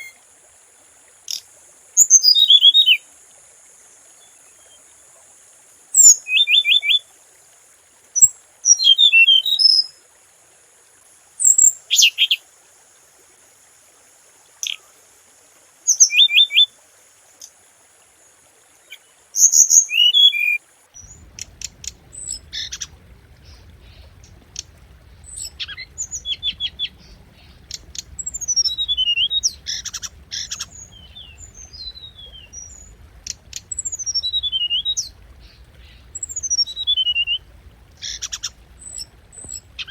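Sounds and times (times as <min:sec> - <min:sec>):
bird singing chirps and whistles: 0:19.4 - 0:39.9
steady high hiss: 0:20.8 - 0:39.9
low hum: 0:21.0 - 0:39.9.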